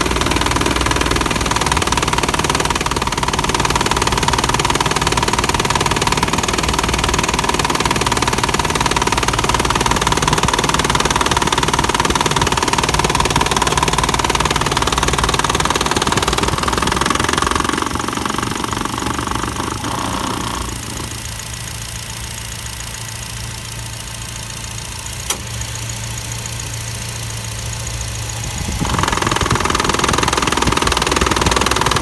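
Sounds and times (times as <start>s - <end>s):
car engine idling: 0.0s - 32.0s
single click: 25.2s - 25.6s
radiator fan running noisily: 28.1s - 32.0s.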